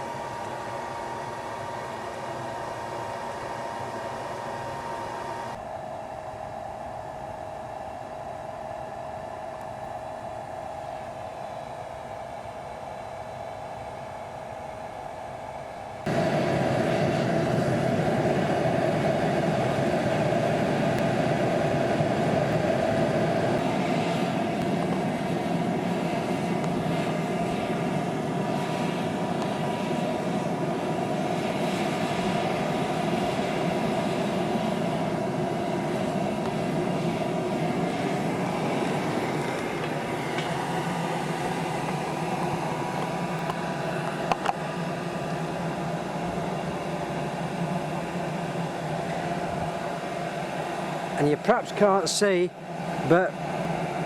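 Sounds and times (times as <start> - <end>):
blower roaring into furnace: 16.0 - 54.0.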